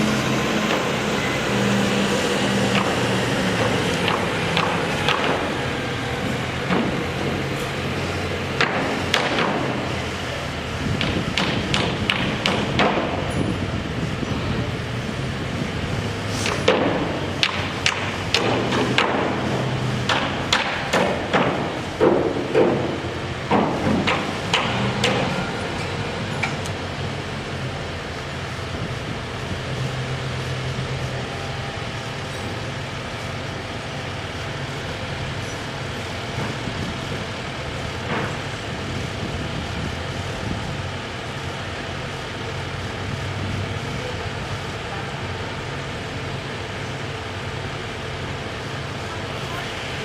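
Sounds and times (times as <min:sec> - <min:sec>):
low engine hum: 0:00.0 - 0:50.0
road traffic with heavy vehicles: 0:00.0 - 0:50.0
sharp knocks: 0:02.7 - 0:05.5, 0:11.0 - 0:13.2, 0:16.4 - 0:25.4.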